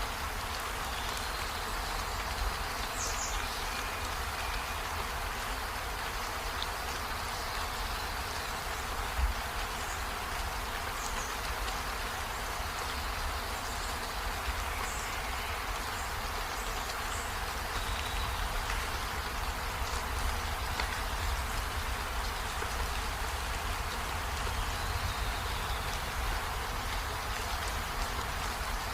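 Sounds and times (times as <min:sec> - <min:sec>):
steady rain falling: 0:00.0 - 0:28.9.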